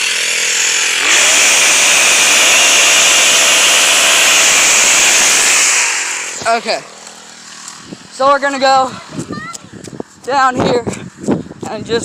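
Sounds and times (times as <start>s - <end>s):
pole saw engine revving: 0.0s - 7.9s.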